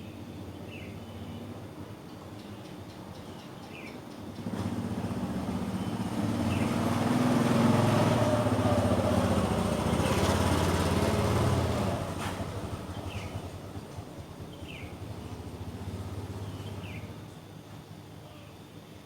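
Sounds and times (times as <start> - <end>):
vehicle engine running: 4.4 - 17.5.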